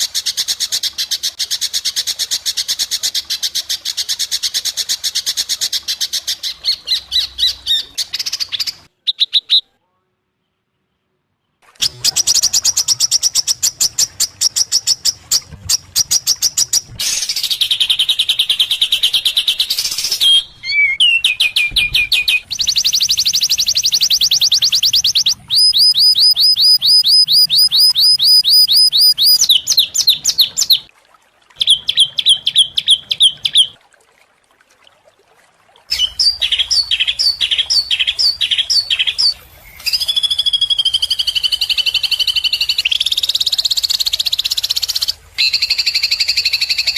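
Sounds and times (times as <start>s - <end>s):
songbird calls: 5.2s - 9.8s, 11.4s - 30.9s, 31.6s - 33.8s, 35.9s - 46.9s
bird warbling song: 5.8s - 9.7s, 11.8s - 30.9s, 31.6s - 33.8s, 35.9s - 46.9s.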